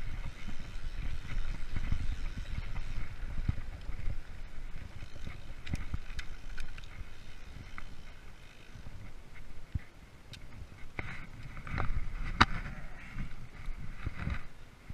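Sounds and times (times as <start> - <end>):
bike rattling knocks and clicks: 0.0 - 12.7, 13.6 - 14.6
bike tyres rumbling on trail: 0.0 - 14.9.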